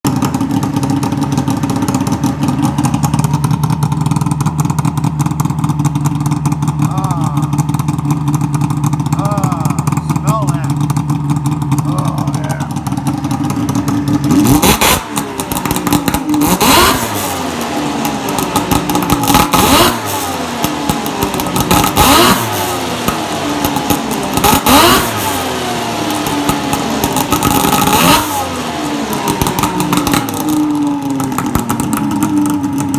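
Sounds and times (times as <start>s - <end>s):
motorcycle engine revving: 0.1s - 32.9s.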